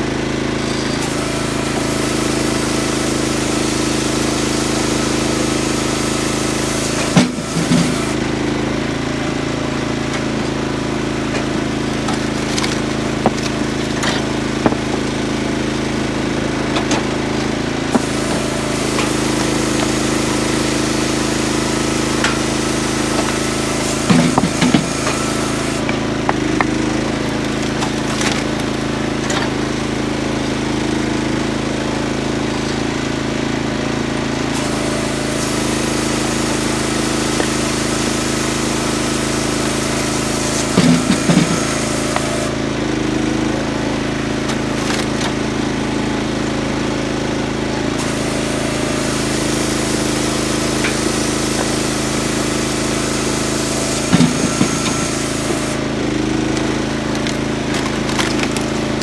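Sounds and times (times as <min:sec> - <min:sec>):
firewood processor engine running: 0:00.0 - 0:59.0
wood knocking and clattering: 0:11.9 - 0:15.5.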